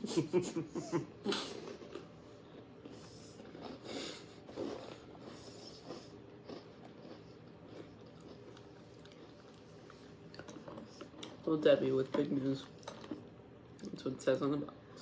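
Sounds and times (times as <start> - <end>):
cereal crunching while chewed: 1.6 - 11.5.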